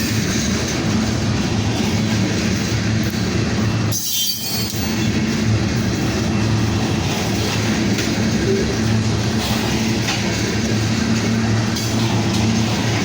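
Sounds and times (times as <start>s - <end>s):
freight train wheels rumbling on rail: 0.0s - 13.0s
high-pitched wheel squeal: 3.9s - 4.8s.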